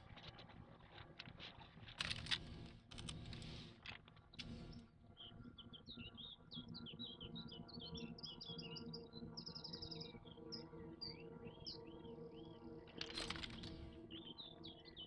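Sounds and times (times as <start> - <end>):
small birds chirping: 4.4 - 15.0.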